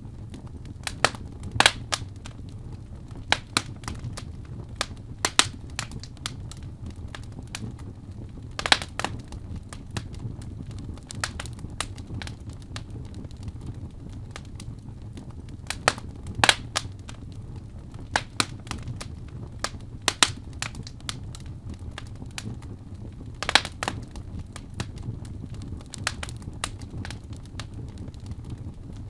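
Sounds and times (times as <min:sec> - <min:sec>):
wood fire crackling: 0:00.0 - 0:29.0.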